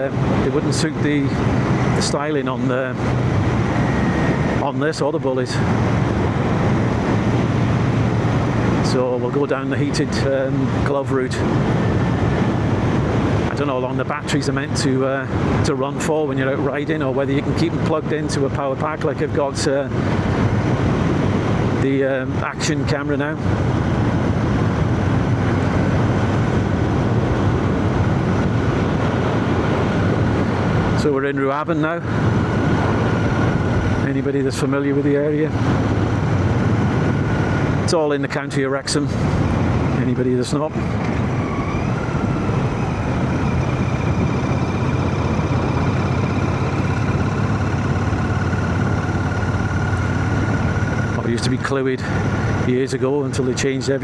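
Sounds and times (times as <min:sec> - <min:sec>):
motorcycle engine cruising: 0:00.0 - 0:21.9, 0:22.6 - 0:38.2, 0:38.9 - 0:54.0
wind and road noise: 0:00.0 - 0:54.0
motorcycle engine running: 0:40.7 - 0:52.8.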